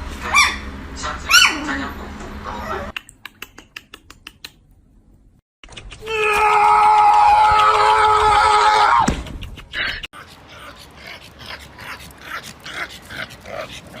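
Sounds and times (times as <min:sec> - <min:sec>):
puppy yelping: 0:01.3 - 0:01.6.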